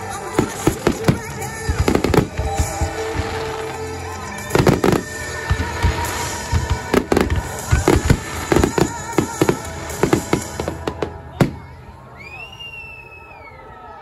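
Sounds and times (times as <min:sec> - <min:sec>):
firework bursts and bangs: 0:00.0 - 0:11.8
firework crackle: 0:00.0 - 0:11.8
music: 0:00.0 - 0:12.2.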